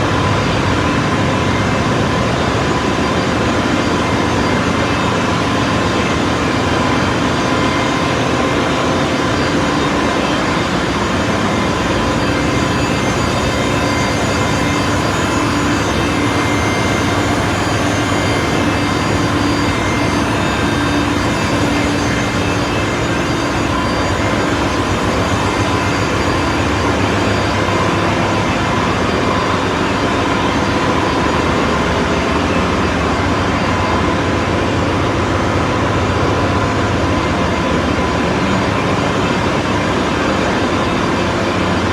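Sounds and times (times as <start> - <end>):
engine-room machinery running: 0.0 - 41.9.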